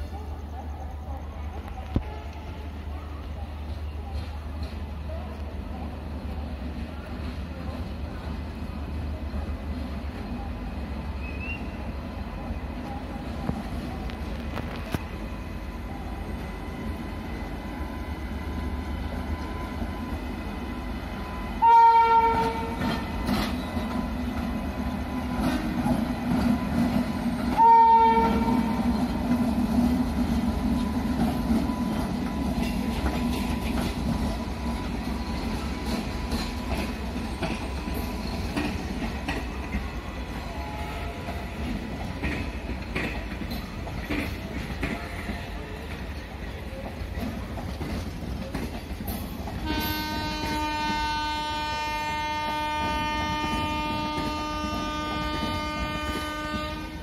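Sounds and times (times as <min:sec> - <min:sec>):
train rumbling: 0:00.0 - 0:57.0
locomotive horn blasts: 0:21.6 - 0:23.1, 0:27.5 - 0:28.8, 0:40.5 - 0:41.4, 0:49.6 - 0:57.0.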